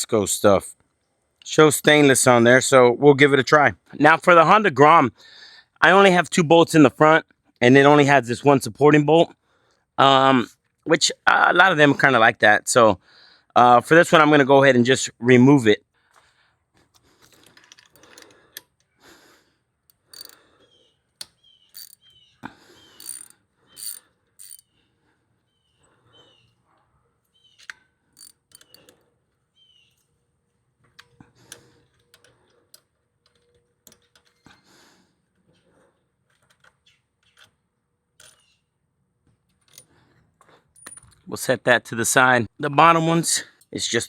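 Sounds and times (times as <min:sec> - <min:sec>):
socket ratchet clicking: 0:19.9 - 0:20.4, 0:21.2 - 0:22.2, 0:23.0 - 0:24.7, 0:27.5 - 0:29.0.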